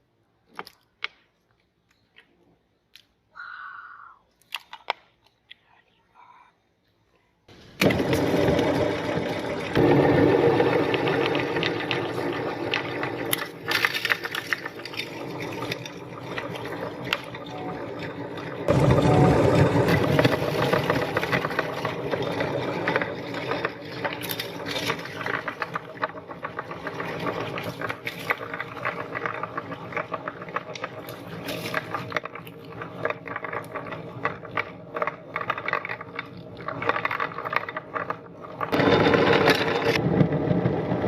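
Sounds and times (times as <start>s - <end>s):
meat grinder running: 7.8s - 41.0s
sharp cracks and crunches: 12.9s - 16.6s.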